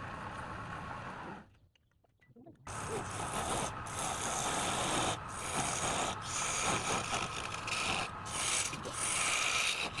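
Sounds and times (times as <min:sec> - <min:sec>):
wood being rasped: 0:02.7 - 0:10.0.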